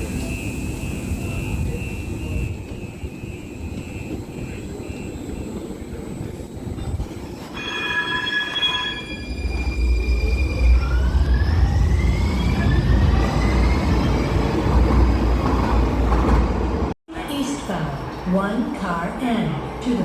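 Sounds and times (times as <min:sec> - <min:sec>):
low train rumble: 0:00.0 - 0:07.7, 0:08.9 - 0:20.0
train wheels squealing: 0:00.0 - 0:14.6.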